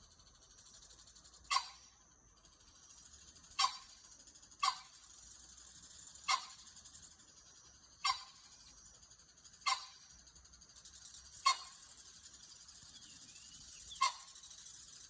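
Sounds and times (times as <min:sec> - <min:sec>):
sharp animal calls: 0:01.5 - 0:01.9, 0:03.5 - 0:04.0, 0:04.6 - 0:05.0, 0:06.2 - 0:06.6, 0:08.0 - 0:08.4, 0:09.6 - 0:10.0, 0:11.3 - 0:12.7, 0:13.7 - 0:14.8.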